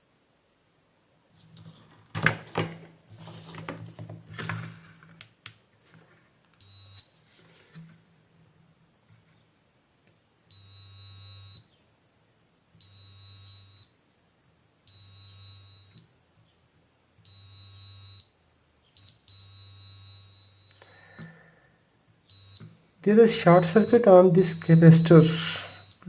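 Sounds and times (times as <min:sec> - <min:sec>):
multimeter continuity beeps: 0:06.6 - 0:07.2, 0:10.5 - 0:11.7, 0:12.8 - 0:14.0, 0:14.9 - 0:16.1, 0:17.2 - 0:18.4, 0:19.0 - 0:21.3, 0:22.3 - 0:26.0.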